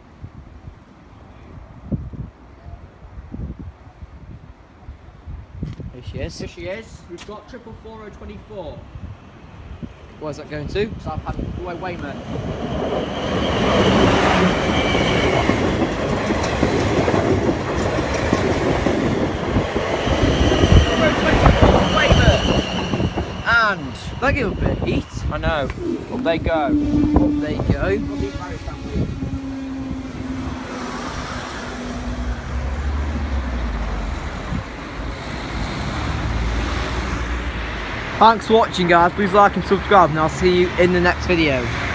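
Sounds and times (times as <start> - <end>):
train rumbling: 8.9 - 41.9
cars passing: 11.2 - 41.9
wheels clicking over rail joints: 14.6 - 22.2.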